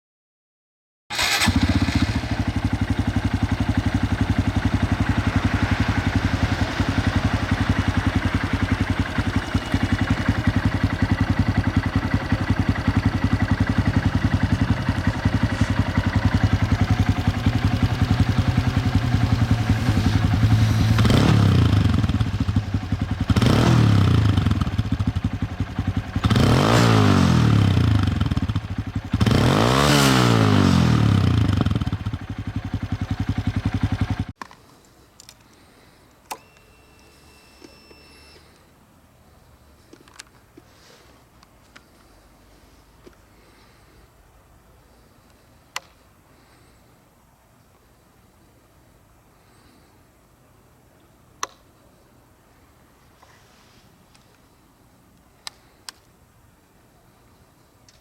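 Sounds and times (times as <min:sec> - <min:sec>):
motorcycle engine idling and revving: 0:01.1 - 0:34.4.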